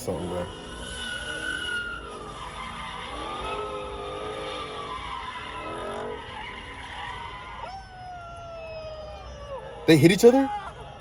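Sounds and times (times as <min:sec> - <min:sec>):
tires squealing: 0:00.0 - 0:08.0.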